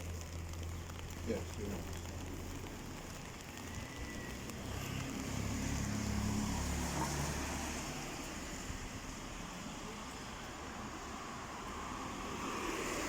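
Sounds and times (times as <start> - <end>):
rain hissing: 0.0 - 13.0
car passing: 3.2 - 13.0.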